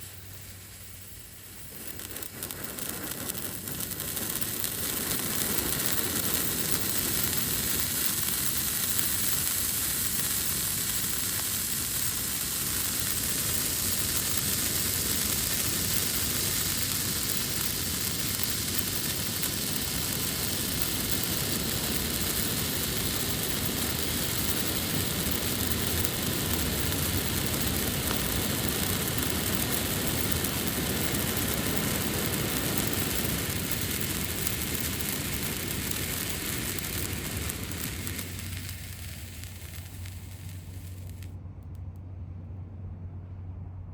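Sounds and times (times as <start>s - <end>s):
firework torch hissing: 0.0s - 41.4s.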